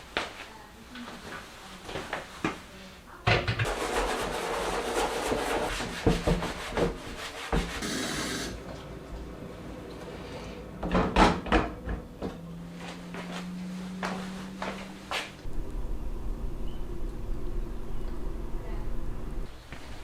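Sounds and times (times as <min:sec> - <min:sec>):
rubbing or scraping: 0:03.6 - 0:08.6
low steady hum: 0:15.4 - 0:20.0.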